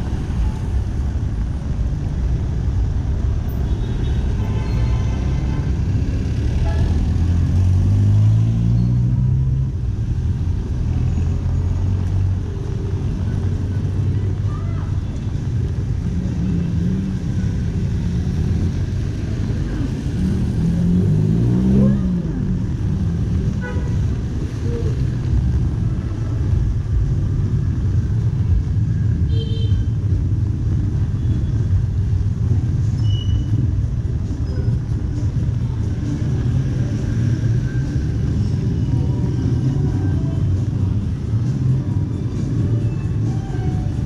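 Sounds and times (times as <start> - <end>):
traffic engines rumbling: 0.0 - 44.0.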